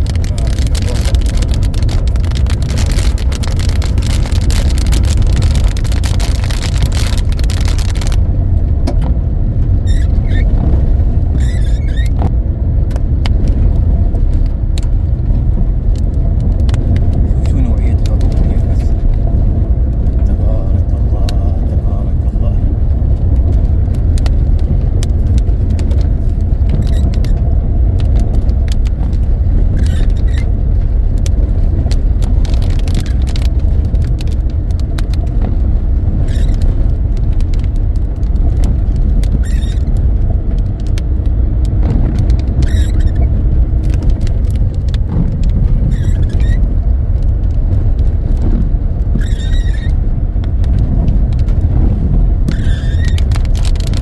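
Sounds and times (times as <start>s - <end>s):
heavy rain on a car: 0.0s - 54.0s
sharp ticks of raindrops: 0.0s - 54.0s
short squeak: 9.8s - 10.5s, 11.4s - 12.2s, 49.2s - 50.0s, 52.5s - 53.2s.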